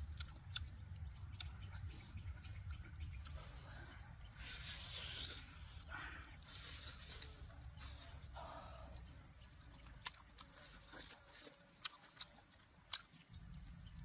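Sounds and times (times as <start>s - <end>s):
lip smacks and mouth clicks: 0.0s - 3.4s, 9.8s - 13.3s
person chewing and biting: 0.0s - 3.4s, 9.8s - 13.4s.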